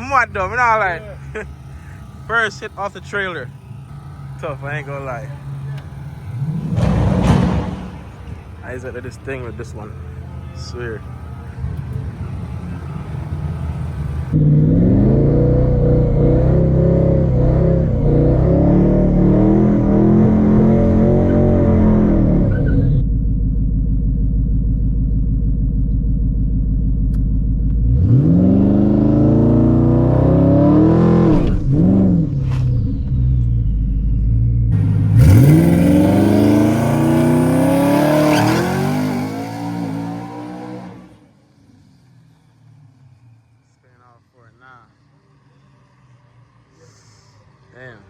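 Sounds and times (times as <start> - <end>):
truck engine revving: 0.0 - 23.0, 27.7 - 41.4.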